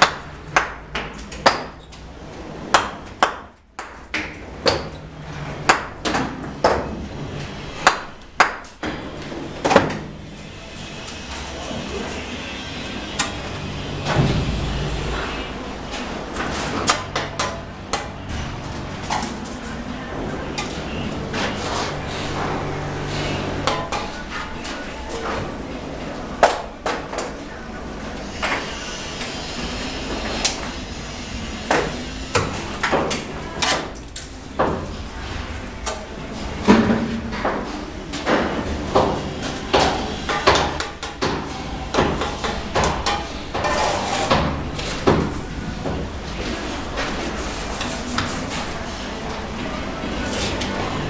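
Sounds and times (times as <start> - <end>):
trowel scraping mortar: 10.7 - 13.3, 43.6 - 44.4, 50.0 - 50.8.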